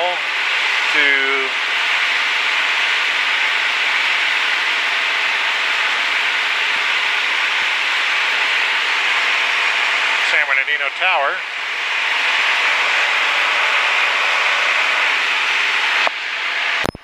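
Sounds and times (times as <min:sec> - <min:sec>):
airplane cabin noise: 0:00.0 - 0:02.8, 0:08.2 - 0:17.0.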